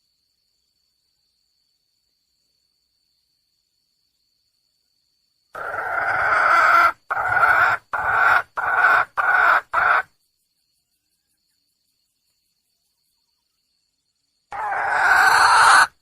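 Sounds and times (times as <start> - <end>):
junglefowl hen calling: 5.6 - 10.1, 14.5 - 16.0.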